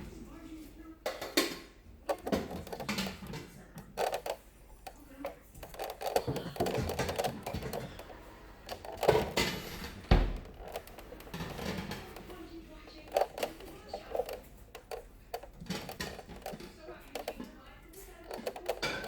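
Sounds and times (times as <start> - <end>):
kitchen clatter: 1.0 - 19.0.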